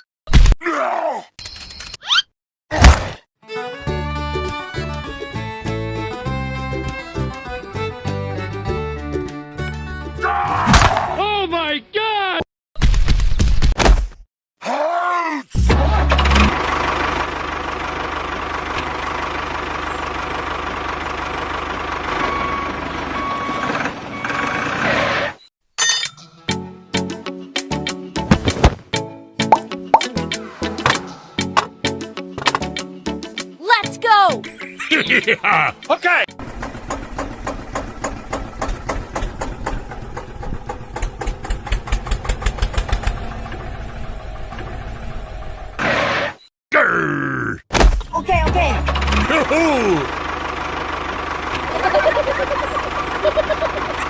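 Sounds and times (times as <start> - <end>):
engine chugging: 15.8 - 24.3, 35.7 - 45.8, 48.2 - 54.0.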